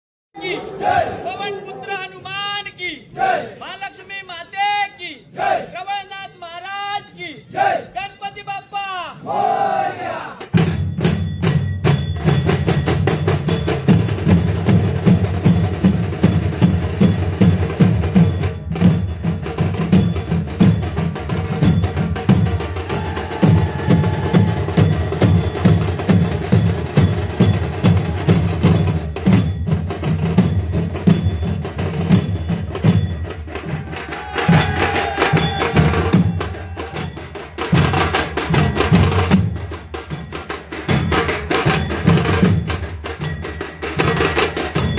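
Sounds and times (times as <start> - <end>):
drums playing a fast beat: 10.4 - 44.9.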